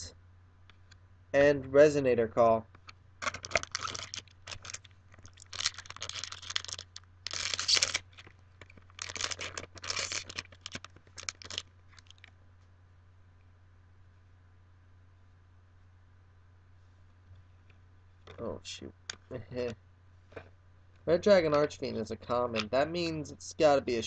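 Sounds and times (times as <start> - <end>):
foil wrapper tearing and crinkling: 3.2 - 12.3.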